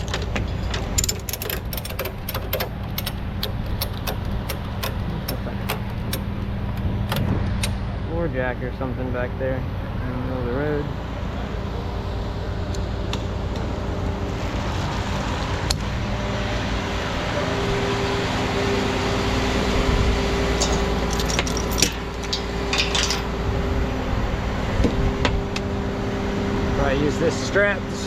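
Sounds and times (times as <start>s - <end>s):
metallic clinks and rattles: 0.0s - 7.2s, 20.2s - 23.4s
vehicle engine humming: 0.0s - 28.0s.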